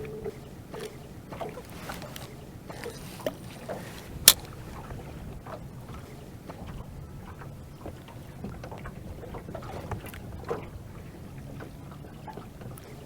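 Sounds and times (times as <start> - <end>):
low boat rumble: 0.0 - 13.0
small clicks and squeaks: 0.7 - 4.7
sharp click: 4.3 - 4.5.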